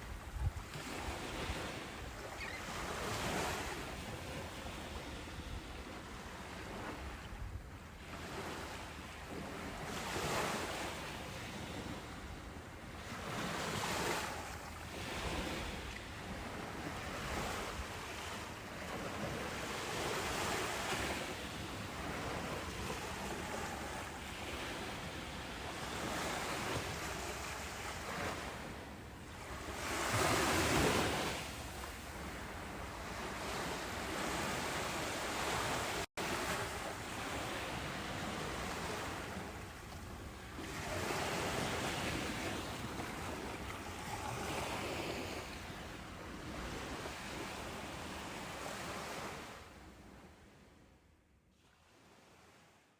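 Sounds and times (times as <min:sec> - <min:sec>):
ocean surf washing ashore: 0:08.1 - 0:49.6.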